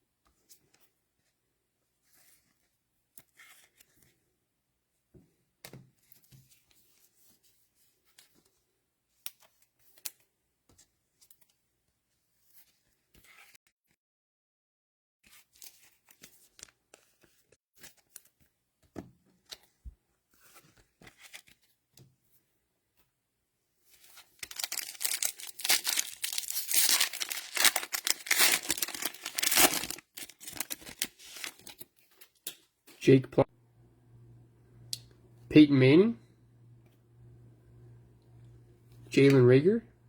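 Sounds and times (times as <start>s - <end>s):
cellophane wrapper crinkling and tearing: 24.0s - 32.6s.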